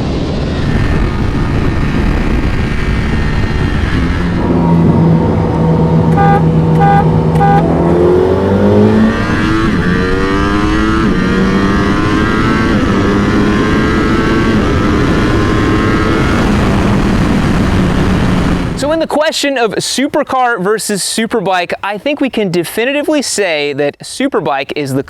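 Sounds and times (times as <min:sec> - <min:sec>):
high-performance engine revving: 0:00.5 - 0:18.8
short beeps: 0:06.1 - 0:07.8.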